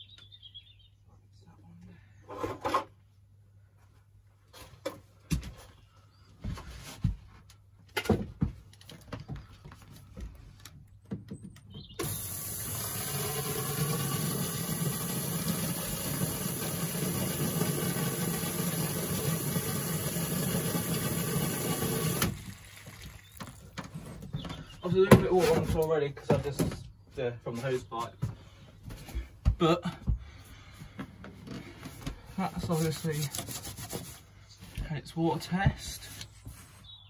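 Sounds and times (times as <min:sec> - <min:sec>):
water running down pipework: 0:12.0 - 0:23.8.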